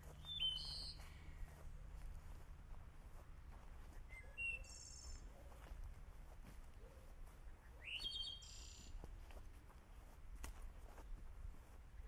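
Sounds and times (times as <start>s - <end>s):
short bright bird calls: 0.3s - 1.3s, 7.7s - 9.0s.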